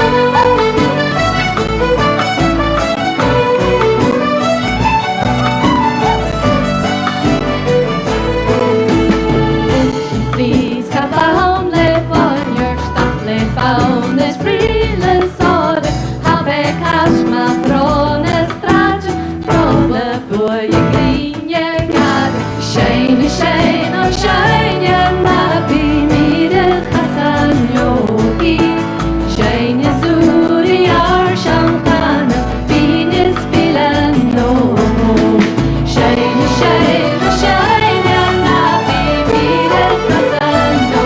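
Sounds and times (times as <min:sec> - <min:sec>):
fiddle: 0:00.0 - 0:10.9, 0:36.0 - 0:41.0
folk band playing: 0:00.0 - 0:41.0
woman singing: 0:09.7 - 0:41.0.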